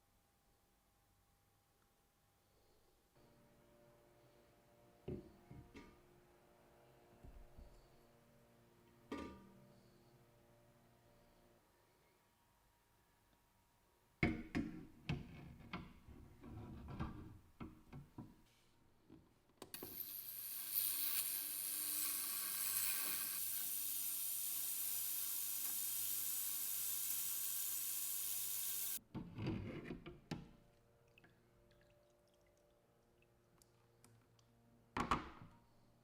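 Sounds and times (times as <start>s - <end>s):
steady hiss: 19.8s - 29.0s.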